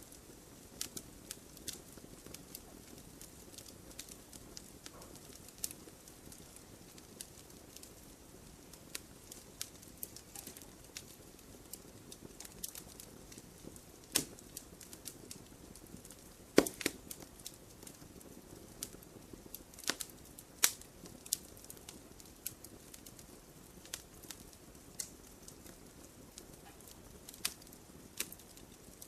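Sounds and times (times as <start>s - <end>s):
campfire crackling: 0.0s - 29.0s
faint hiss of burning: 0.0s - 29.0s.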